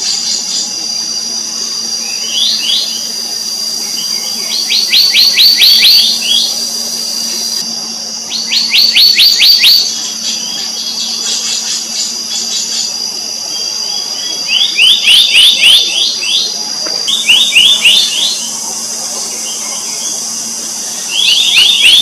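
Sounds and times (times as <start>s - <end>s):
high insect drone: 0.0s - 22.0s
bird singing ringing notes: 17.1s - 22.0s.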